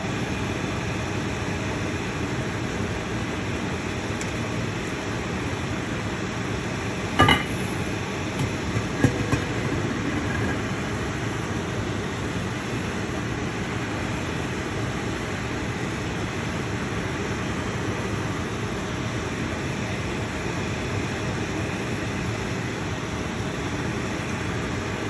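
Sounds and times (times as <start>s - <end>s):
cooking rushing noise: 6.9s - 12.9s
utensil clinking on metal pot: 7.2s - 7.8s, 8.4s - 10.6s.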